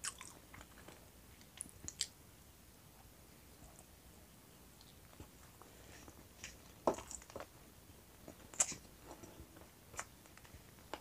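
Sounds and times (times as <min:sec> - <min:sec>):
person chewing: 0:00.0 - 0:02.1.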